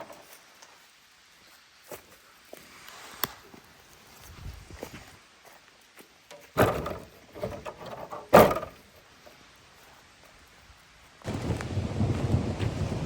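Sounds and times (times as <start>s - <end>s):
dull thumps: 6.6s - 8.8s.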